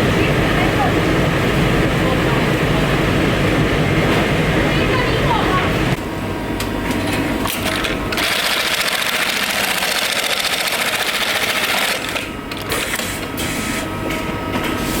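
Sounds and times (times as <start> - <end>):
sewing machine stitching: 8.1 - 13.0.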